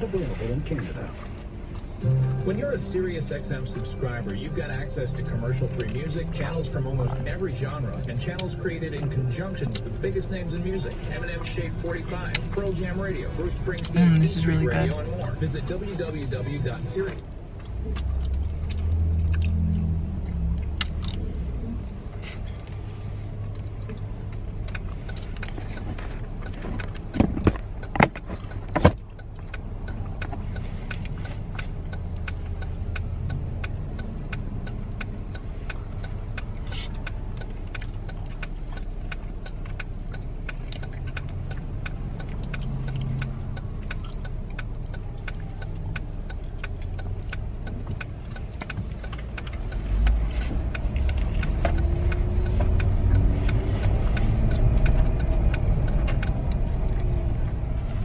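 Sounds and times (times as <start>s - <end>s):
car cabin rumble: 0.0s - 58.0s
sharp clicks: 23.4s - 57.9s.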